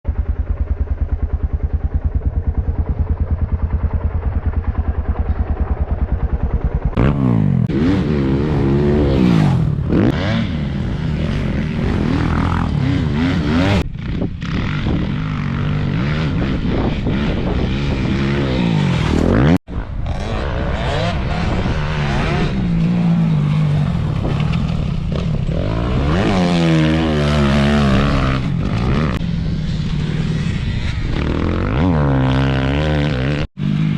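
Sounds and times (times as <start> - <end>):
motocross bike engine revving: 6.8 - 33.9.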